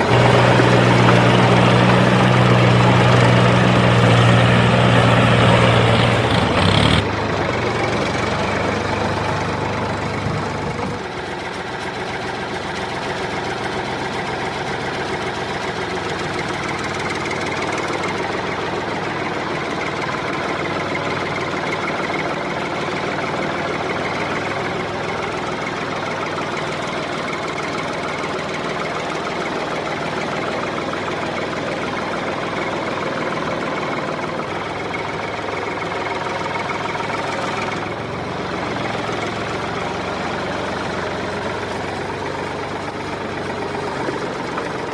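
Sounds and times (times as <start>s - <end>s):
small motor droning: 0.0s - 12.3s.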